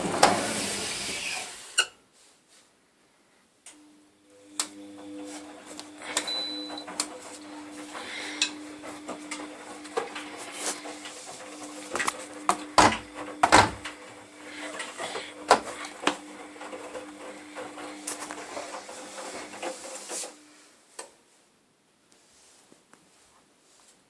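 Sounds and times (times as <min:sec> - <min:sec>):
washing machine running: 0:00.0 - 0:01.8, 0:03.8 - 0:20.6.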